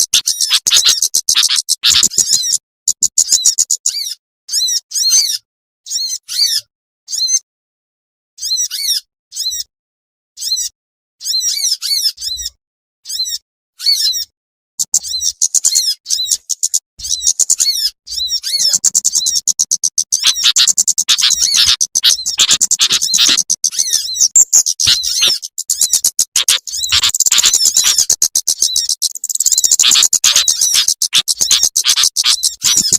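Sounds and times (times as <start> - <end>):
songbirds chirping and chattering: 0.0 - 7.4, 8.4 - 9.7, 10.4 - 32.9.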